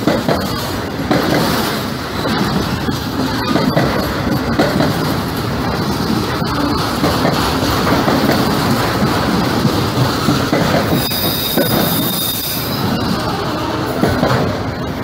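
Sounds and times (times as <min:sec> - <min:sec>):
wheels clicking over rail joints: 0:00.0 - 0:13.1
freight train rumbling past: 0:00.0 - 0:15.0
high-pitched wheel squeal: 0:10.9 - 0:13.8.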